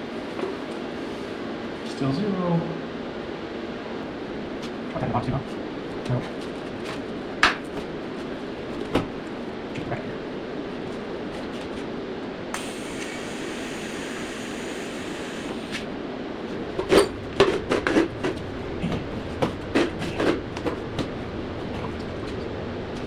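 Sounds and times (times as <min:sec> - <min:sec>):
steady hum: 0:00.0 - 0:23.0
brief high hiss: 0:12.5 - 0:15.9.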